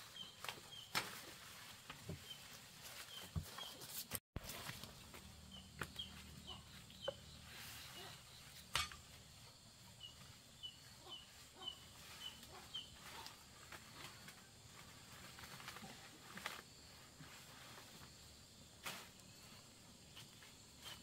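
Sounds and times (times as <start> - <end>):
bird chirping: 5.4 - 8.9, 9.8 - 13.4
leafy branches rustling in basket: 11.5 - 21.0.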